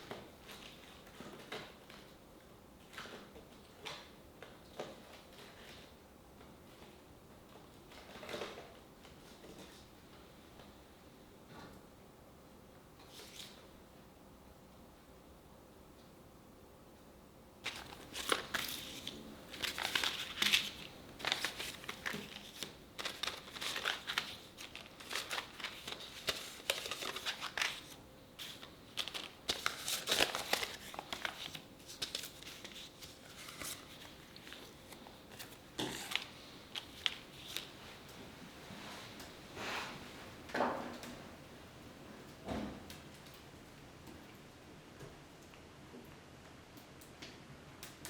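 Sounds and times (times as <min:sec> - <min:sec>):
crackling handling noise: 0:17.6 - 0:39.6.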